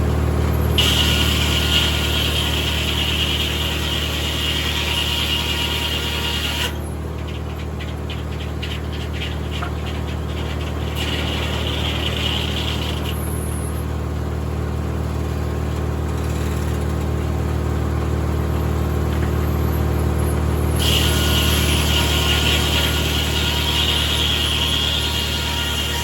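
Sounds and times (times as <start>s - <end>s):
tractor engine hum: 0.0s - 2.1s, 6.1s - 20.9s
circular sawmill running: 0.0s - 26.0s.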